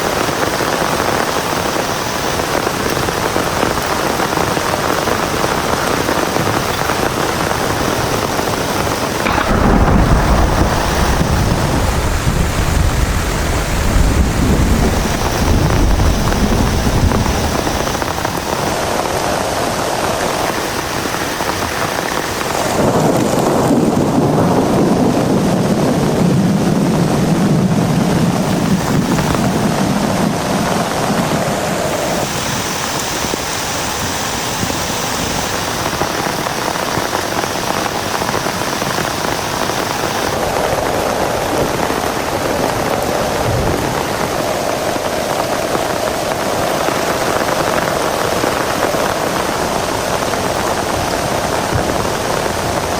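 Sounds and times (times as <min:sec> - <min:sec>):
heavy rain falling: 0:00.0 - 0:52.9
rolling thunder rumble: 0:09.2 - 0:18.8, 0:20.3 - 0:31.3.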